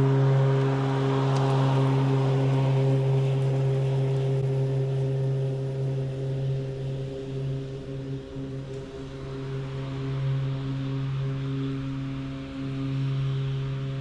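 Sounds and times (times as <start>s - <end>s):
electric lawn mower humming: 0.0s - 14.0s.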